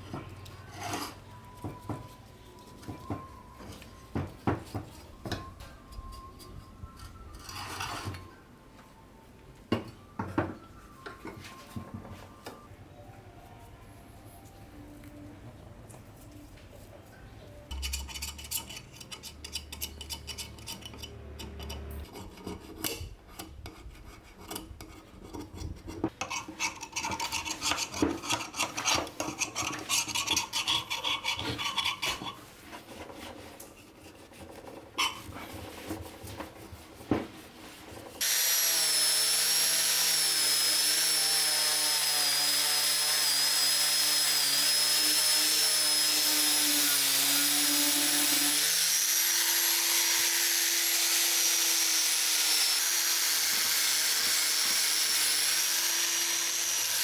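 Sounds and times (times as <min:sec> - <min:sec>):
hand scraping rusted metal: 0:17.7 - 0:36.8
power tool whining: 0:38.2 - 0:57.0.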